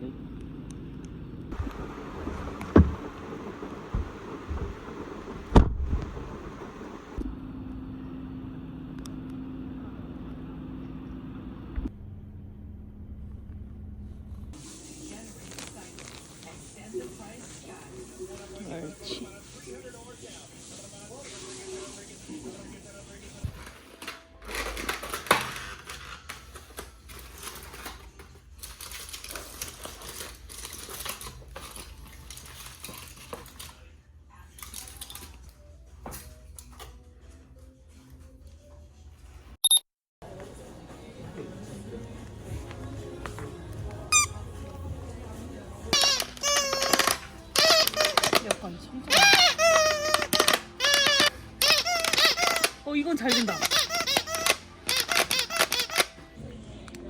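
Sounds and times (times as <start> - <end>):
low mechanical hum: 0.0 - 16.1.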